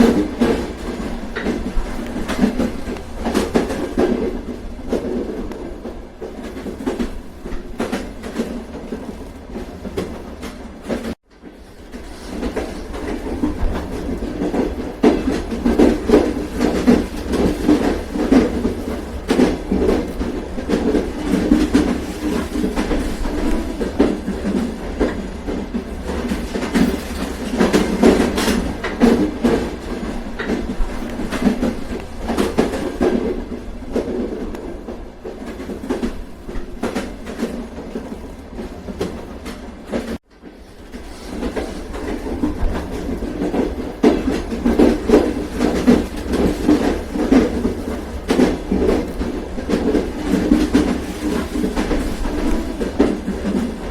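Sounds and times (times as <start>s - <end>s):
train rumbling on rails: 0.0s - 53.9s
wheels clicking over rail joints: 0.0s - 53.9s.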